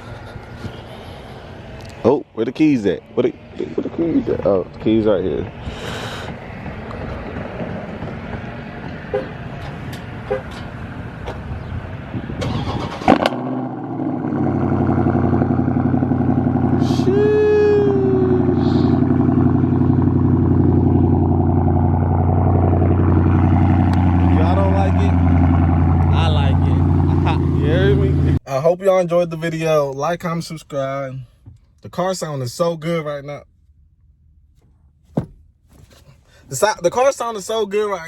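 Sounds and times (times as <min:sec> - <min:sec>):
car starter cranking: 0:12.3 - 0:13.5
car engine idling loudly: 0:13.2 - 0:28.4.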